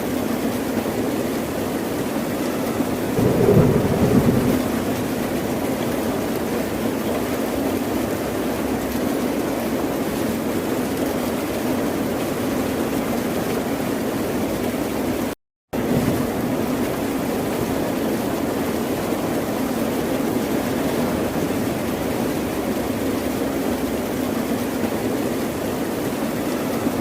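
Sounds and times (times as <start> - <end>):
ocean surf rumbling: 2.8 - 6.5.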